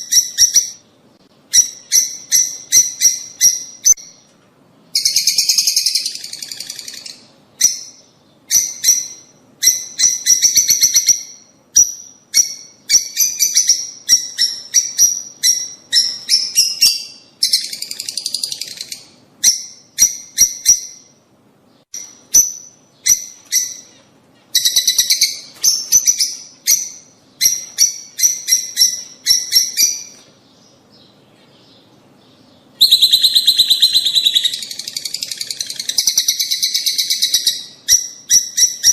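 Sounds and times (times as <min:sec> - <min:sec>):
lovebirds chattering: 0:22.0 - 0:38.9.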